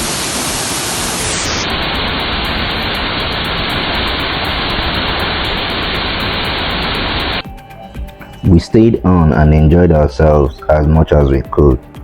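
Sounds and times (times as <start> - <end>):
waterfall rushing: 0.0 - 7.4.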